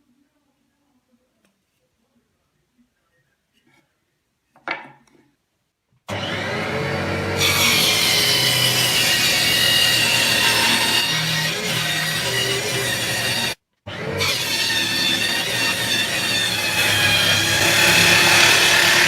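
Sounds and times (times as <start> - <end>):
power saw cutting wood: 6.1 - 19.0.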